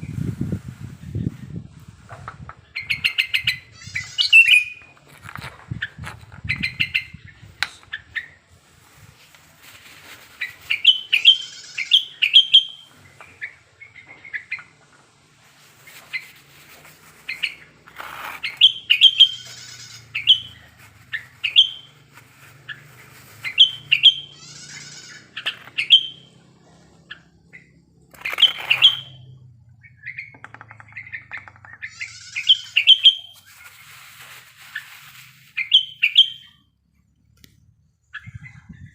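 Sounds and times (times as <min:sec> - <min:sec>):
bird whistling song: 0:02.8 - 0:04.9, 0:10.4 - 0:14.7, 0:18.4 - 0:22.0, 0:23.4 - 0:24.4, 0:25.4 - 0:26.3, 0:27.6 - 0:33.4, 0:35.6 - 0:36.7
buzzy chattering bird notes: 0:27.2 - 0:33.4
brief rustle: 0:33.3 - 0:35.6.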